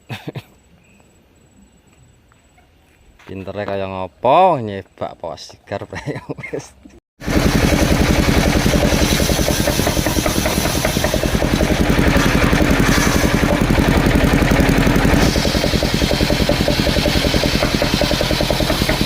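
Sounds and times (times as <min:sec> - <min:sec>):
sawmill engine running: 0:07.2 - 0:19.0.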